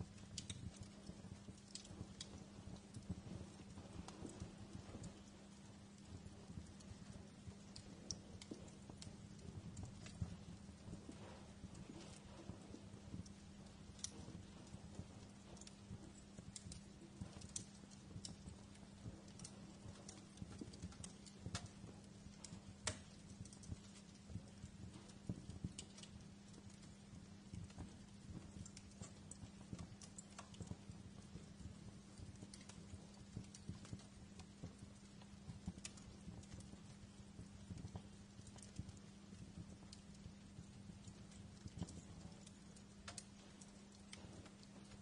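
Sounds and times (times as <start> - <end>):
low steady hum: 0.0 - 45.0
wood fire crackling: 0.0 - 45.0.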